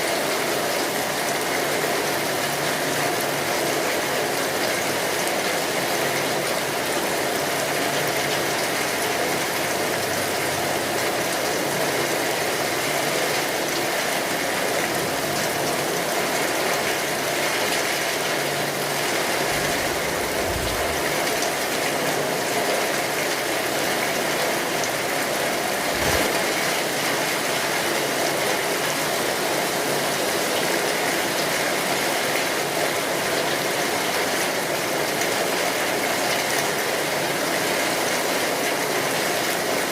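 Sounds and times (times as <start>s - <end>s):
steady rainfall: 0.0s - 39.9s
dull low thump: 19.5s - 21.7s.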